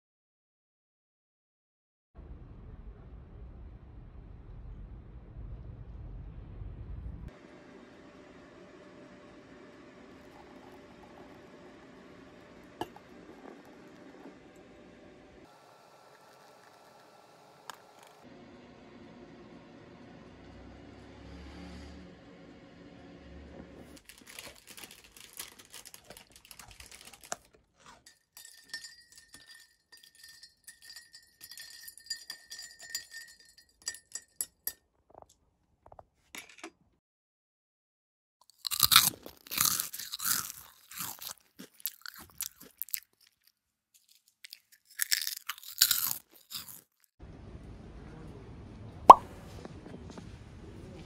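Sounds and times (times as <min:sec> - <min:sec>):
crunching and chewing bread: 0:12.6 - 0:14.8, 0:24.0 - 0:28.1, 0:38.4 - 0:47.2.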